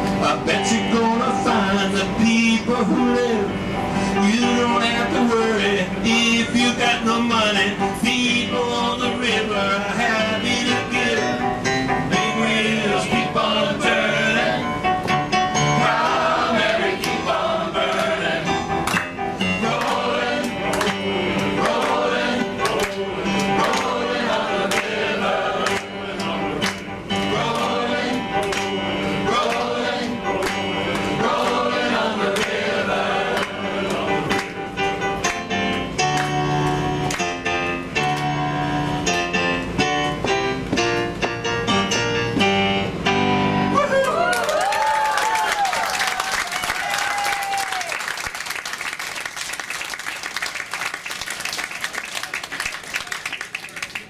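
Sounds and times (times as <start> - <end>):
male choir singing: 0.2 - 3.6, 4.2 - 15.0, 15.6 - 18.8, 19.4 - 34.9
instrumental accompaniment: 13.4 - 43.8.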